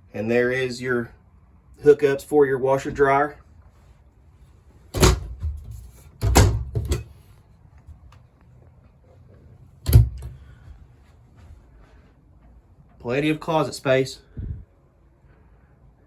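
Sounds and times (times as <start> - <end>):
closet doors knocking shut: 4.9 - 7.1, 9.8 - 10.5.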